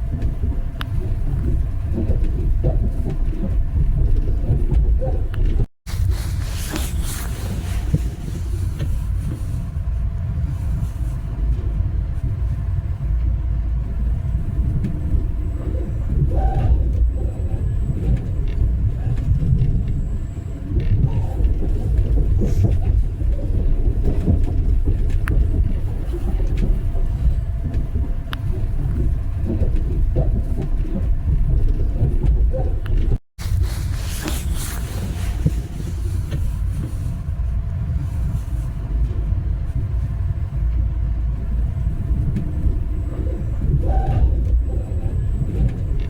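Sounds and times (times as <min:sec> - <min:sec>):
train rumble from inside car: 0:00.0 - 0:46.0.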